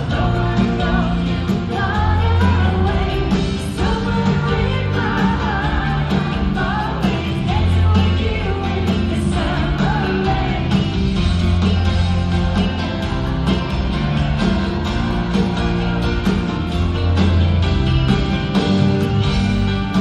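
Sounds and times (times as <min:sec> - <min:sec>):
woman singing: 0:00.0 - 0:10.9
live pop-rock band: 0:00.0 - 0:20.0.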